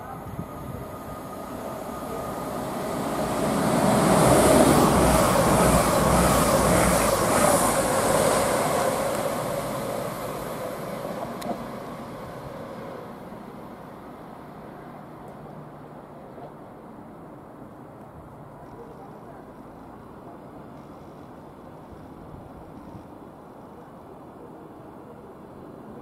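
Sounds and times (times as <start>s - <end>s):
diesel train passing: 0.0s - 18.2s.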